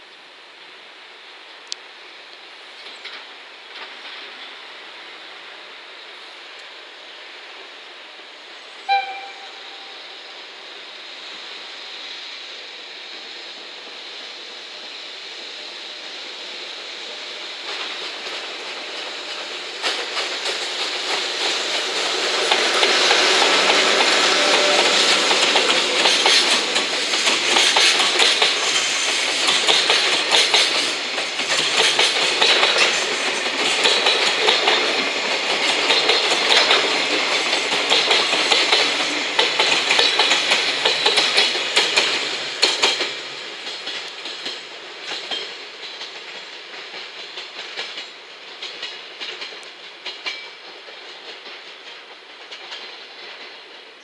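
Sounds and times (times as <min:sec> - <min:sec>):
electric locomotive passing: 0:00.0 - 0:54.0
wheels clacking over rail joints: 0:17.6 - 0:54.0.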